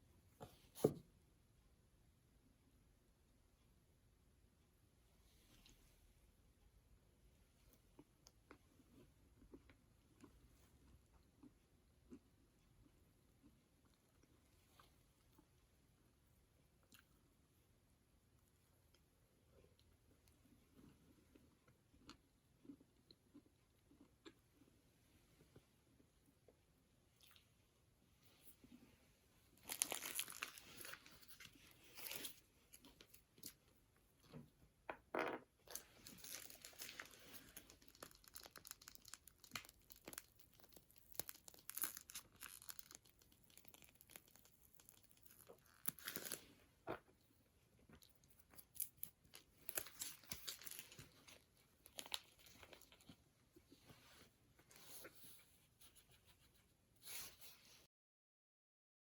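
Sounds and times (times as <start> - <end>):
crunchy scone being eaten: 35.7 - 46.5.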